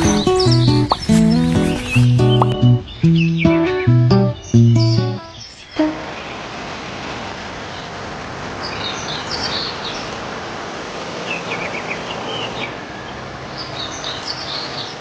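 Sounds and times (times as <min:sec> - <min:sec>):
rain hiss: 0:00.0 - 0:02.6, 0:05.3 - 0:15.0
birds chirping: 0:00.0 - 0:06.4.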